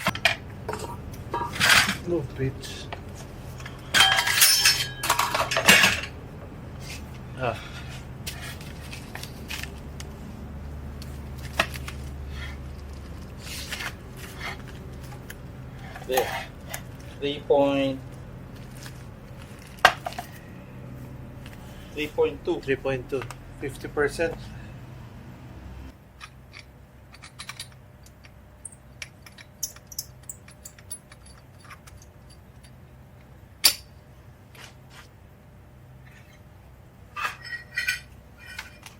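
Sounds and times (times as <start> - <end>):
rustling of parts: 0.0 - 6.2, 6.8 - 17.3, 18.0 - 22.1, 26.1 - 33.9, 37.1 - 38.9
steady low hum: 0.0 - 38.9
tools clicking: 26.2 - 32.8.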